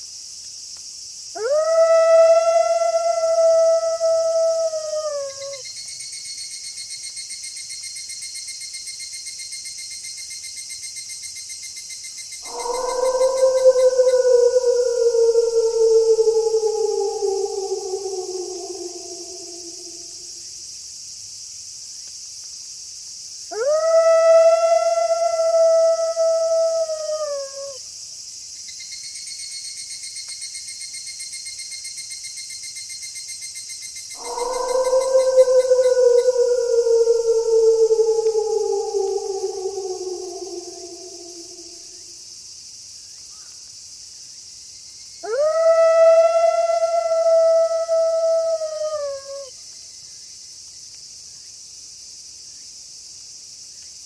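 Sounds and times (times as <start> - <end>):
crickets chirping: 0.0 - 54.0
night insects chorus: 0.0 - 54.0
wolf howling: 1.4 - 5.6, 12.4 - 20.4, 23.5 - 27.8, 34.2 - 42.2, 45.2 - 49.5.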